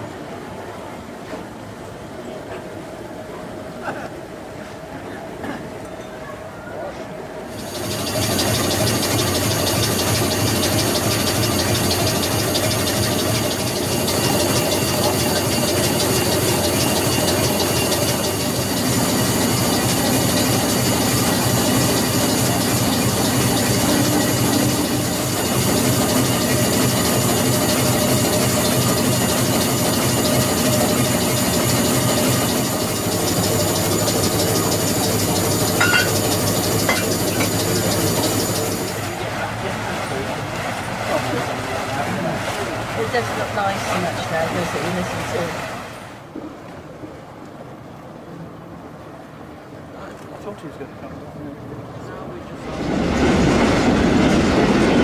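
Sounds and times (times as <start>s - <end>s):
train mechanical drone: 0.0s - 46.3s, 47.6s - 55.0s
high-pitched tones: 33.5s - 38.0s.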